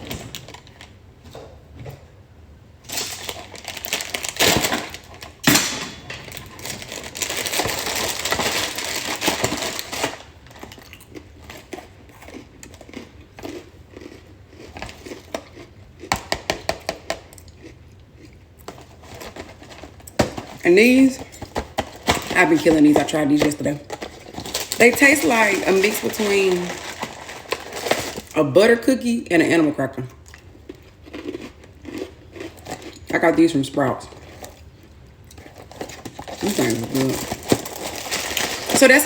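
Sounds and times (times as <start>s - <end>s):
plastic packaging crinkling: 0.0s - 1.0s, 2.8s - 15.6s, 18.6s - 28.4s, 35.3s - 39.0s.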